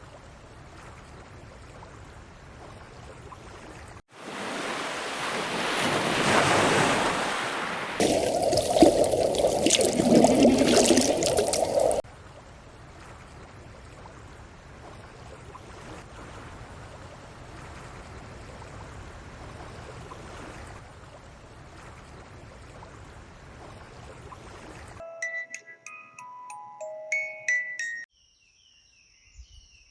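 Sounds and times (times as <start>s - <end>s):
water rushing: 4.2s - 12.0s.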